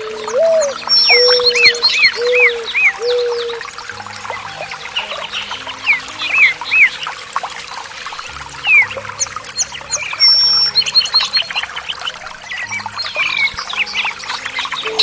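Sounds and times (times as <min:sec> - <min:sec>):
lower whistled notes: 0:00.0 - 0:07.2
songbirds calling: 0:00.0 - 0:15.0
water trickling: 0:00.0 - 0:15.0.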